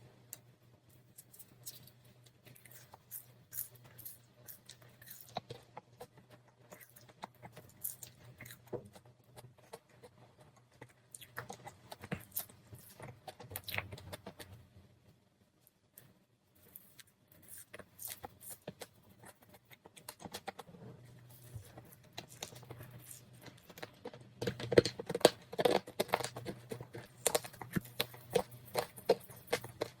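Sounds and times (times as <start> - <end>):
person chewing marshmallow: 1.0 - 14.6, 16.6 - 30.0
sticky clicks and lip smacks: 21.7 - 30.0.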